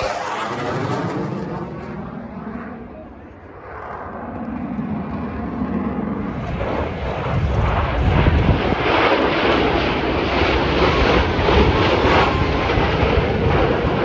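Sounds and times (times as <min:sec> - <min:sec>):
fighter jets flying past: 0:00.0 - 0:14.0.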